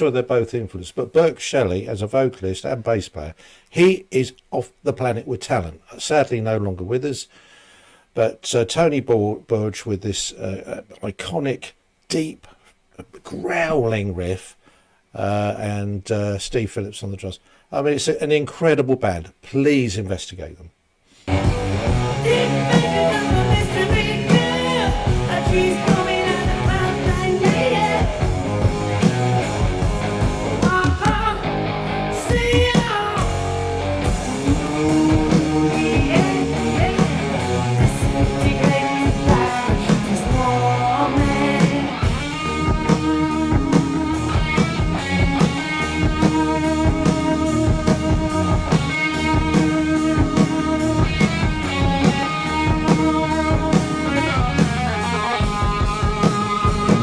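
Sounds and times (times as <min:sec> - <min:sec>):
electric guitar riff: 0:21.3 - 0:57.0
hard rock music: 0:21.3 - 0:57.0
male lead vocal: 0:22.0 - 0:29.2, 0:30.5 - 0:31.6, 0:32.2 - 0:33.6, 0:34.4 - 0:44.7.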